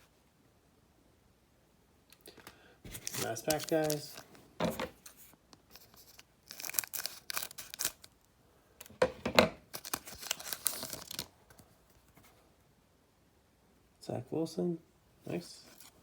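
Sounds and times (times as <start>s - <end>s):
foil wrapper tearing and crinkling: 2.9s - 4.3s, 5.0s - 8.2s, 9.7s - 11.3s, 15.7s - 16.0s.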